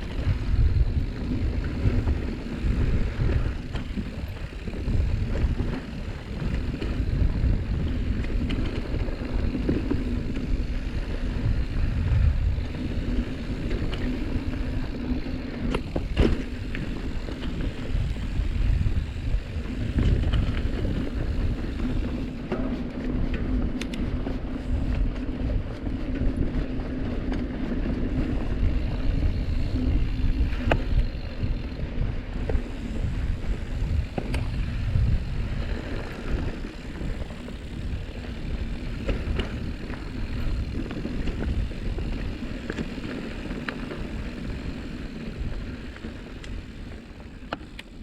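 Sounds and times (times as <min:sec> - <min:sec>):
wind on microphone: 0:00.0 - 0:47.4
bike clicks and rattles: 0:00.0 - 0:48.0.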